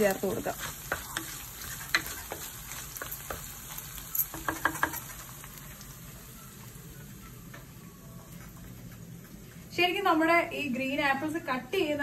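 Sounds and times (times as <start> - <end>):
wooden spatula scraping and tapping: 0.0 - 5.3
spices sizzling in hot oil: 0.0 - 7.4.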